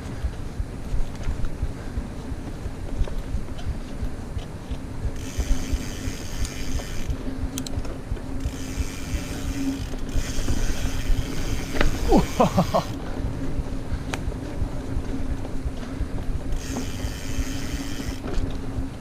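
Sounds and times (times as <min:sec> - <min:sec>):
wind on microphone: 0:00.0 - 0:12.3
tyres rumbling on trail: 0:00.0 - 0:19.0
bike freehub ratcheting: 0:05.1 - 0:07.8, 0:08.4 - 0:13.0, 0:16.5 - 0:18.5.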